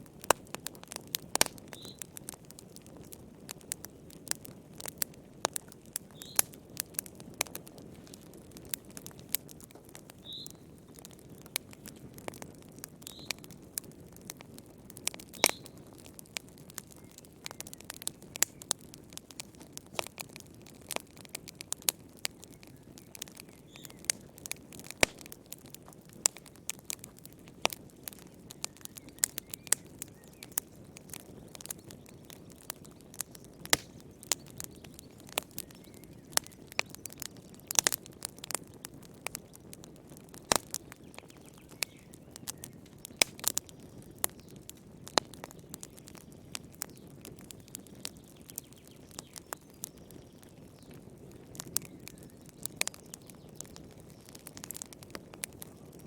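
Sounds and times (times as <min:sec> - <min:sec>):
logs crackling and popping: 0:00.0 - 0:56.0.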